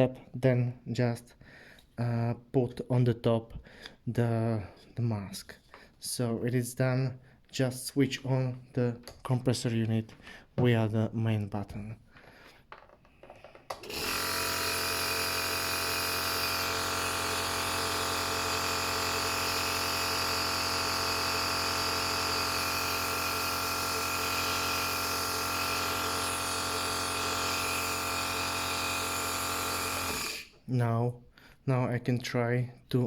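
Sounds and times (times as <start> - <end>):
nebulizer motor buzzing hum: 13.4 - 30.6.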